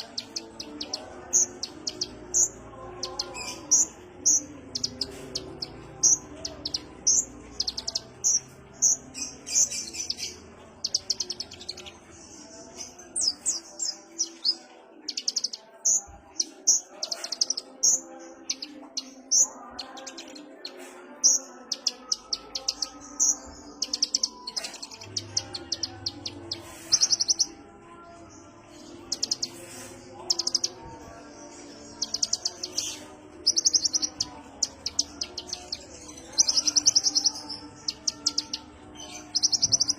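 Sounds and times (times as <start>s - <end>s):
sunbird chirping and trilling: 0.0s - 20.7s, 31.7s - 39.9s.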